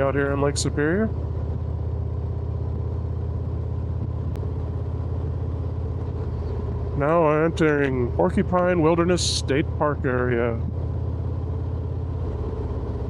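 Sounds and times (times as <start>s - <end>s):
motorcycle engine cruising: 0.0s - 13.0s
road and wind noise: 0.0s - 13.0s.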